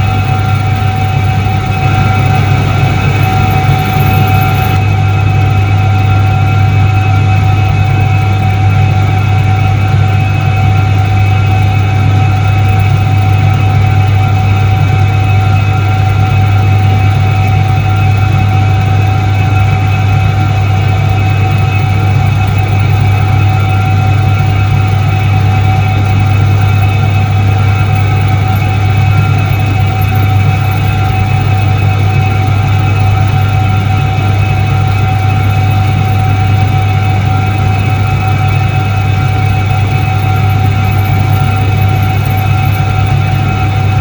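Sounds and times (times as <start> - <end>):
washing machine motor humming: 0.0 - 11.3, 22.8 - 44.0.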